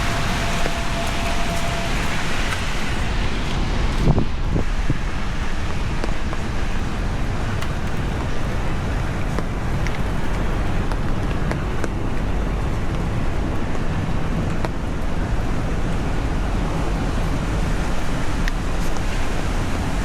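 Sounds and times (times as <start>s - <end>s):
constant low rumble: 0.0s - 20.0s
heavy rain on street: 0.0s - 20.0s.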